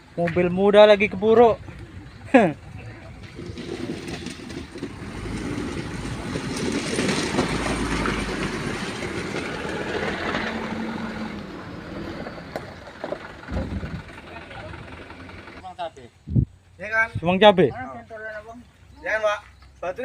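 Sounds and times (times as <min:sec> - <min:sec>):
truck engine rumble: 0:00.0 - 0:20.0
tyres crunching on gravel: 0:03.1 - 0:13.8.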